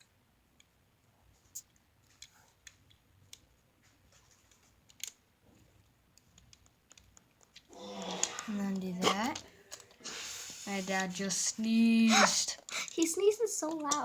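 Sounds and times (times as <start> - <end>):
plastic bricks clicking together: 4.5 - 5.2, 6.2 - 10.0, 12.5 - 14.0.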